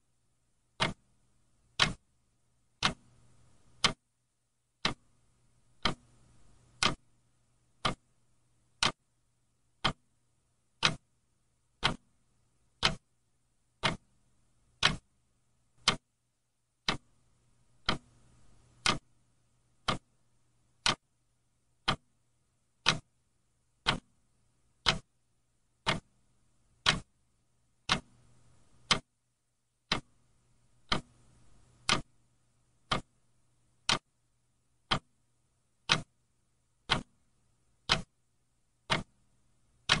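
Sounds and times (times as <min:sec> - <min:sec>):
faint low hum: 0:00.0 - 0:40.0
clock ticking: 0:00.7 - 0:01.1, 0:01.7 - 0:02.0, 0:02.8 - 0:04.0, 0:04.8 - 0:05.1, 0:05.7 - 0:07.1, 0:07.7 - 0:08.1, 0:08.7 - 0:09.1, 0:09.7 - 0:10.1, 0:10.7 - 0:12.1, 0:12.7 - 0:13.1, 0:13.8 - 0:14.1, 0:14.8 - 0:15.1, 0:15.8 - 0:16.1, 0:16.8 - 0:19.2, 0:19.8 - 0:20.2, 0:20.8 - 0:21.1, 0:21.8 - 0:22.2, 0:22.8 - 0:23.2, 0:23.8 - 0:24.2, 0:24.8 - 0:25.2, 0:25.8 - 0:26.2, 0:26.8 - 0:27.1, 0:27.8 - 0:29.2, 0:29.8 - 0:32.2, 0:32.8 - 0:33.2, 0:33.8 - 0:34.1, 0:34.8 - 0:35.2, 0:35.8 - 0:38.2, 0:38.8 - 0:39.2, 0:39.8 - 0:40.0.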